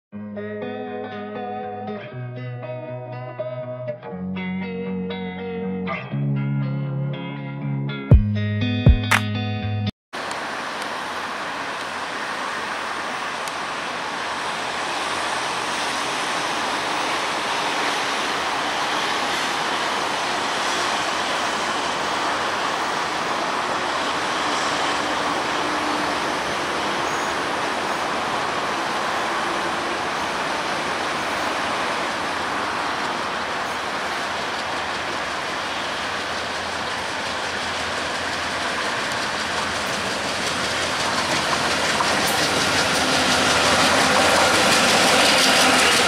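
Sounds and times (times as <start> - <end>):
diesel train rushing on track: 10.2 - 46.0.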